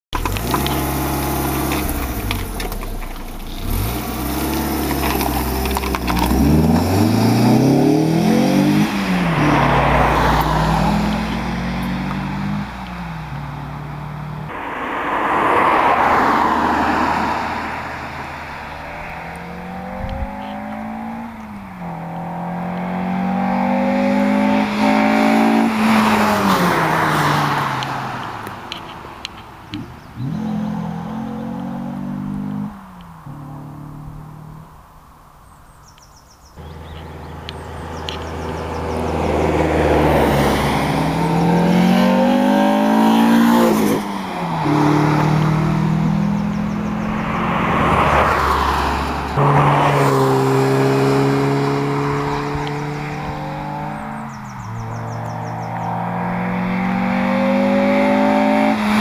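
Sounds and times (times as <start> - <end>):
car engine accelerating through gears: 0.2 - 28.8, 29.7 - 34.8, 36.6 - 59.0.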